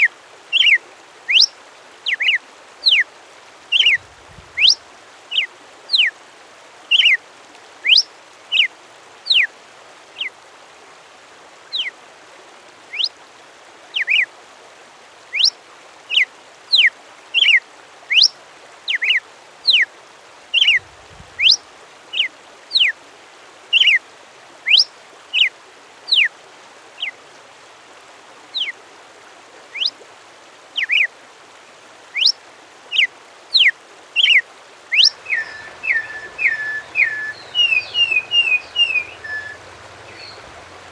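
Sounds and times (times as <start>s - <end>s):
background hiss: 2.0s - 6.1s, 20.5s - 21.9s, 34.3s - 40.9s
songbird whistling sharp notes: 35.0s - 40.9s.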